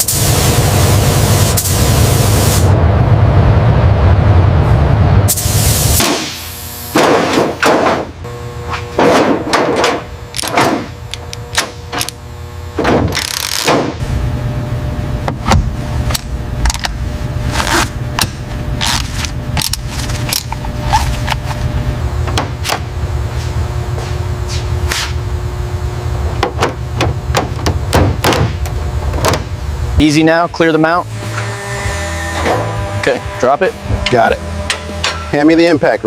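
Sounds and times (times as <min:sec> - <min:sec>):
steady low rumble: 0:00.1 - 0:06.9, 0:13.8 - 0:36.0
sharp knocks: 0:07.0 - 0:08.2, 0:26.4 - 0:28.6.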